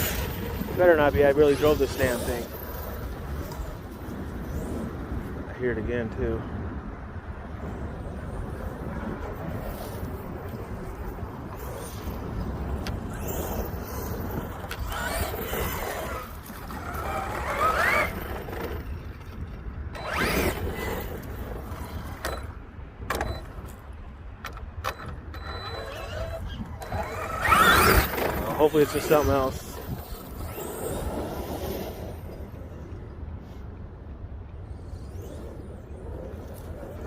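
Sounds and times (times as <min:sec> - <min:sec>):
wind rumble on microphone: 0:00.0 - 0:37.0
electric motor whining: 0:12.8 - 0:18.6, 0:20.0 - 0:22.5, 0:25.0 - 0:32.1.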